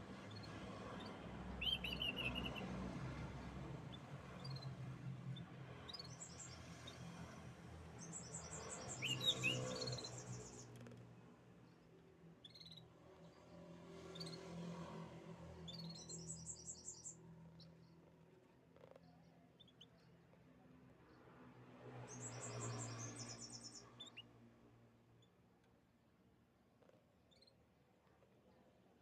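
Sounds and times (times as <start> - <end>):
canaries trilling: 8.4 - 10.6.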